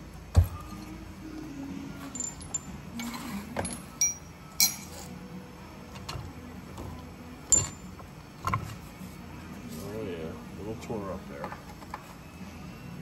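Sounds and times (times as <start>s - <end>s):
metal parts clinking on workbench: 2.0s - 5.1s, 7.5s - 7.9s.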